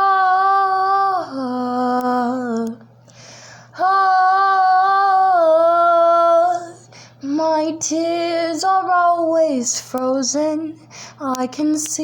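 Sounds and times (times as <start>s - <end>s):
woman singing wordless ah: 0.0s - 3.0s, 3.7s - 12.0s
quick breath: 3.0s - 3.7s, 10.9s - 11.2s.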